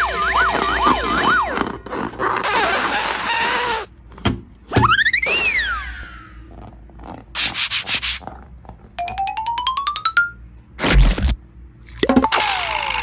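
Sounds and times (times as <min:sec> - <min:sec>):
scratchy rubbing burst: 0:00.3 - 0:03.9, 0:07.3 - 0:08.4.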